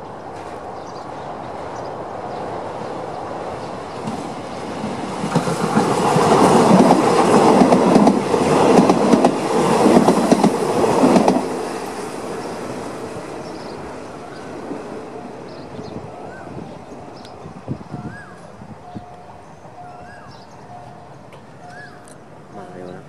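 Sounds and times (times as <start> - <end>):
diesel train passing: 0.0 - 23.0
clickety-clack over rail joints: 3.9 - 12.1.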